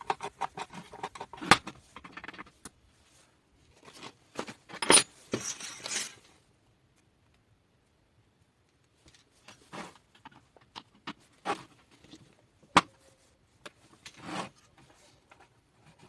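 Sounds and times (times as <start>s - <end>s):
small hard parts clicking and rattling: 4.7s - 6.2s.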